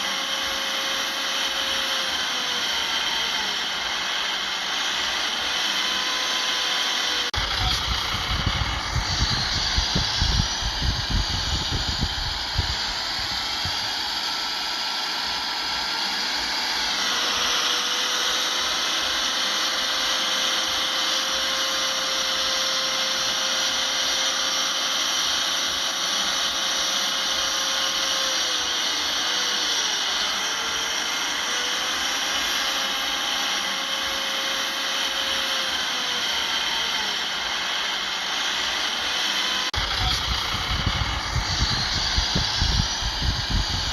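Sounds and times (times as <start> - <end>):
loud high whine and hiss: 0.0 - 43.9
heavy machinery engine running: 7.1 - 14.2, 39.6 - 43.9.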